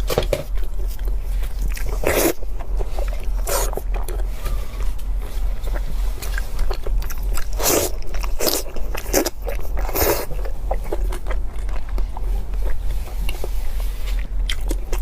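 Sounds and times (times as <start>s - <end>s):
steady low hum: 0.0s - 15.0s
wet chewing and biting: 0.5s - 15.0s.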